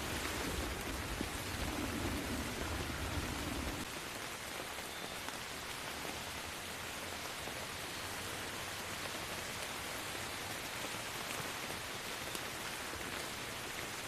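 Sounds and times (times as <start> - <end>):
low thunder rumble: 0.0 - 3.9
rain falling: 0.0 - 14.0.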